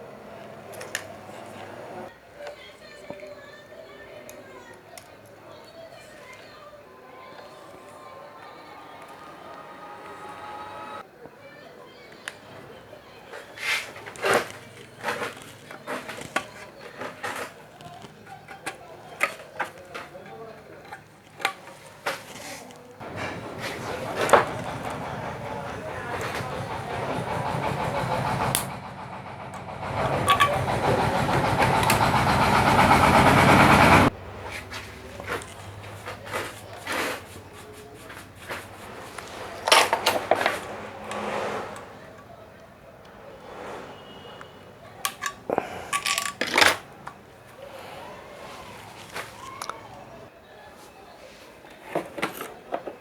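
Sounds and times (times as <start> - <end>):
parts and tools scraping rustling: 0.3 - 11.0, 12.2 - 53.0
tools and parts clicking: 45.0 - 47.2.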